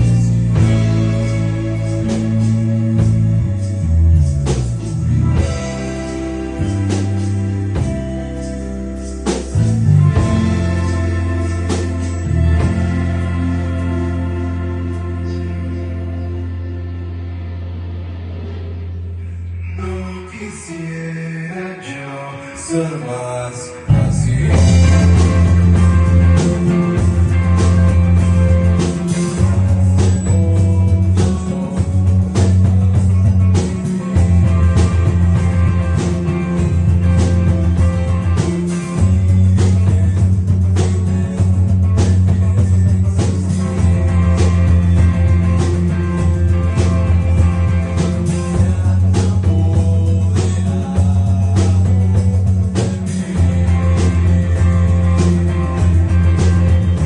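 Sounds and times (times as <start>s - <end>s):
steady drum beat: 0.0s - 16.1s, 23.9s - 57.0s
heavy bass line: 0.0s - 21.5s, 22.6s - 57.0s
guitar: 0.0s - 57.0s.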